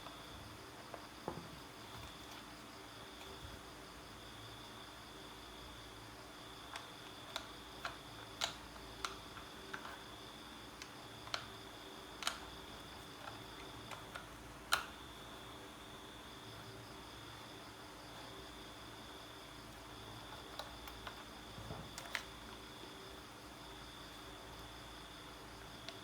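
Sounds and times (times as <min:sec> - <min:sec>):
faint steady hiss: 0:00.0 - 0:26.0
small parts clicking and tapping: 0:06.6 - 0:10.1, 0:10.7 - 0:15.0, 0:19.7 - 0:22.6.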